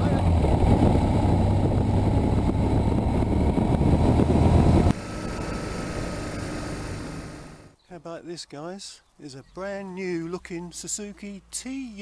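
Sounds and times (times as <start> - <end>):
wind rush on microphone: 0.0 - 6.6
motorcycle engine: 0.0 - 7.8.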